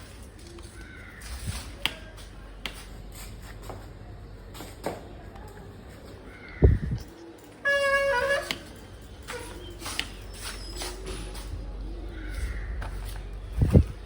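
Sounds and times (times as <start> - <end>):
bicycle rumbling: 6.1 - 14.0.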